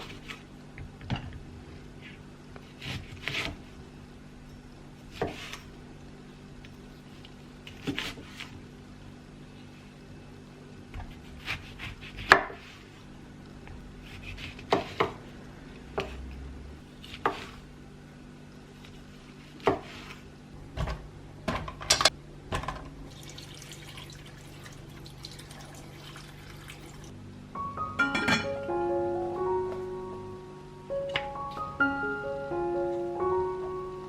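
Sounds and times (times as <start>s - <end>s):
steady low hum: 0.0s - 34.0s
dishes and utensils clinking: 28.0s - 28.6s.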